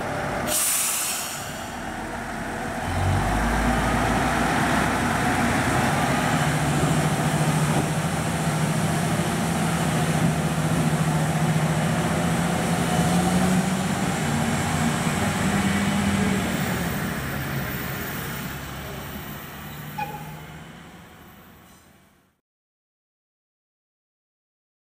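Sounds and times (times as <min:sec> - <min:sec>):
train running: 0:00.0 - 0:22.0
brief high squeal: 0:19.7 - 0:20.5, 0:21.6 - 0:22.0.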